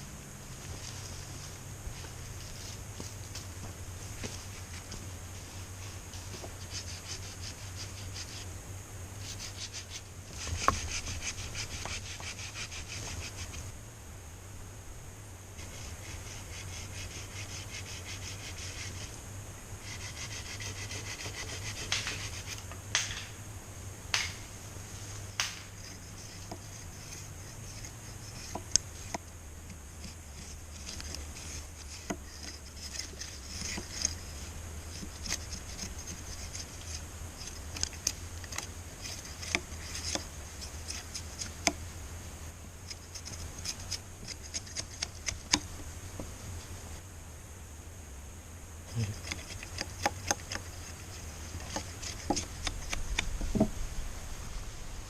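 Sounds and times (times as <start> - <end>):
wood scraping and rubbing: 30.0 - 41.8, 48.9 - 53.9.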